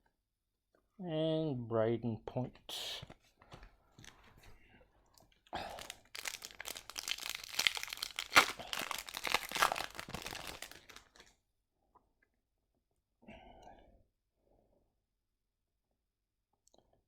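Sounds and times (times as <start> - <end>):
wrapper tearing and crinkling: 5.6 - 11.3.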